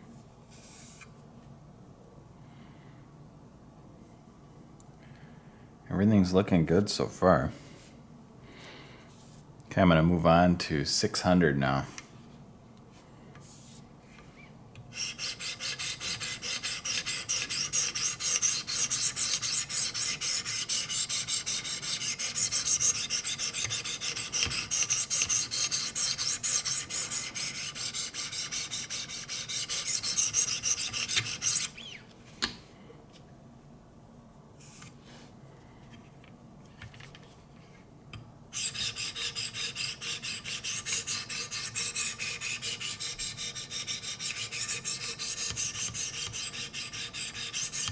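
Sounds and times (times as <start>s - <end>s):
sharpening stone rasping on blade: 15.0s - 31.8s, 38.6s - 47.9s.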